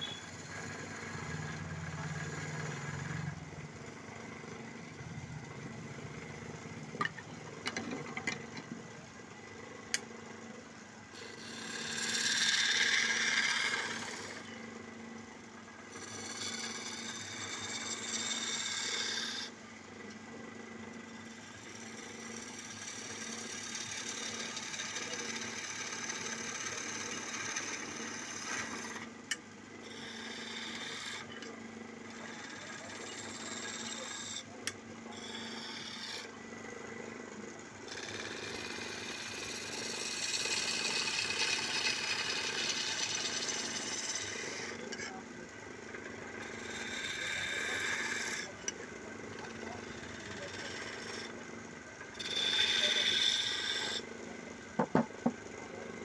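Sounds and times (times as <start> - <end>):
chisel scraping spinning wood: 0.0 - 9.1, 11.0 - 14.9, 15.8 - 37.1, 37.7 - 56.0
wood lathe motor hum: 0.0 - 56.0.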